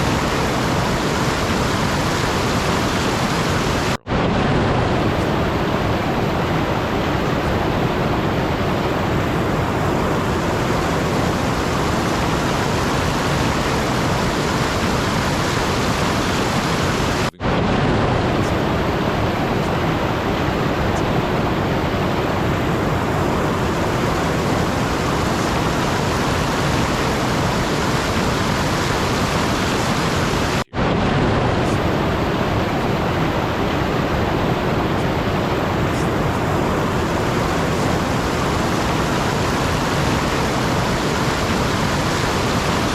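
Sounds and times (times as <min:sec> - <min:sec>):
steady rushing static noise: 0:00.0 - 0:42.9.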